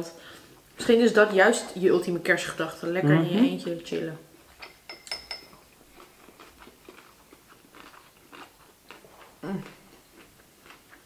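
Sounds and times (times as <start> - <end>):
chewing and biting food: 5.8 - 11.0.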